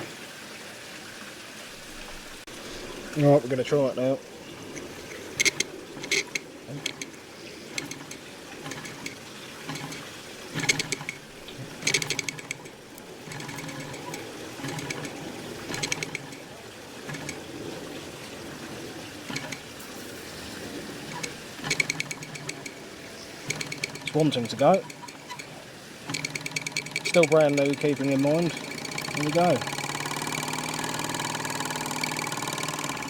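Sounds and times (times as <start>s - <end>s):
steam cylinder chuffing and clicking: 3.1s - 33.0s
steady low steam hiss: 16.4s - 21.7s.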